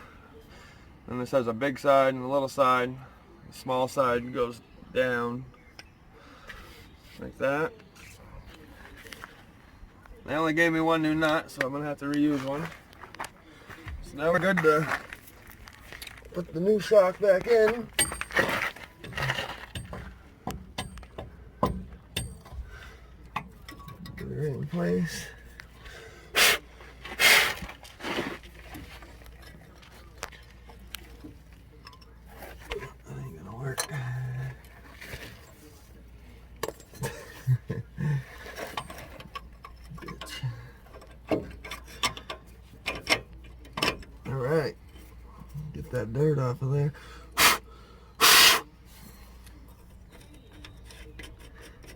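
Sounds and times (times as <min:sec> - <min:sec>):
clicks and knocks of fitting parts: 0:17.9 - 0:24.2, 0:38.6 - 0:44.2
metallic clinks and knocks: 0:17.9 - 0:24.2, 0:29.3 - 0:32.4.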